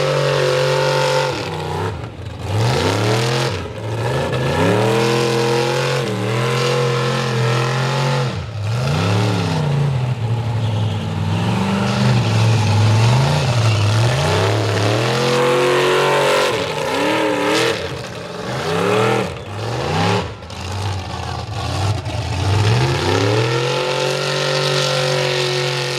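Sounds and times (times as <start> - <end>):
truck engine revving hard: 0.0 - 25.9.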